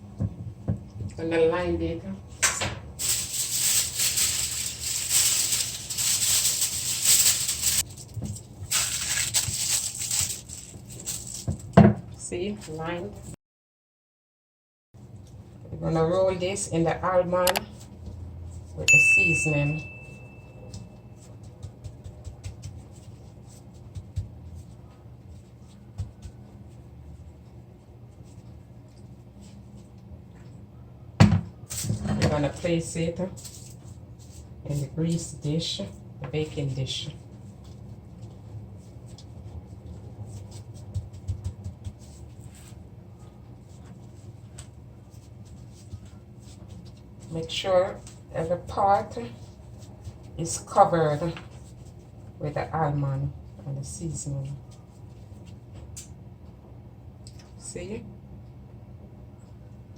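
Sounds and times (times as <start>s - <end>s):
steady low hum: 0.0s - 13.4s
baking sheet crinkling: 3.0s - 11.7s
scratching and tapping in coating: 20.6s - 29.1s, 37.5s - 42.7s.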